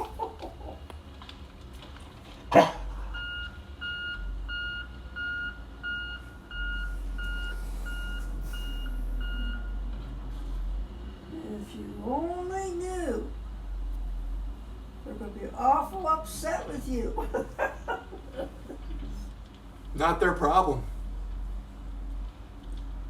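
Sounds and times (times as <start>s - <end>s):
low engine rumble: 0.0s - 23.0s
reversing beeper: 3.1s - 9.8s.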